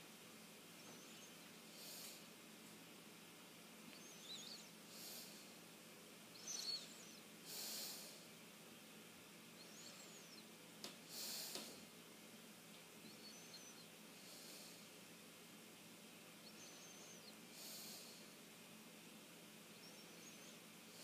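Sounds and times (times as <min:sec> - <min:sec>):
ceiling fan humming: 0:00.0 - 0:21.0
faint high chirp: 0:00.8 - 0:01.5, 0:03.9 - 0:04.8, 0:06.3 - 0:07.3, 0:09.6 - 0:10.5, 0:13.0 - 0:13.9, 0:16.4 - 0:18.0, 0:19.7 - 0:20.7
short breathy hisses: 0:07.5 - 0:08.2, 0:11.1 - 0:11.8.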